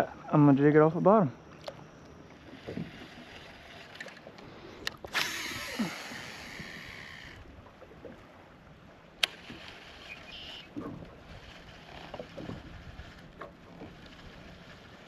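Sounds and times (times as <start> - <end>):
fishing line hissing out: 2.5 - 7.4, 9.2 - 10.7
fishing reel click: 3.0 - 7.4.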